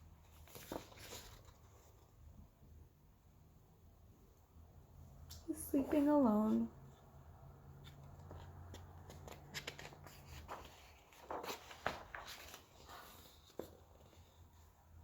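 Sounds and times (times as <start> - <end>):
book pages rustling: 0.0 - 2.3, 7.0 - 15.0.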